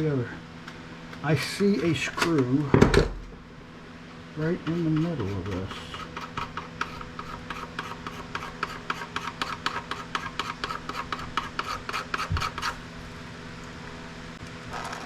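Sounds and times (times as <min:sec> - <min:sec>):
hand tool rasping strokes: 0:04.6 - 0:12.8.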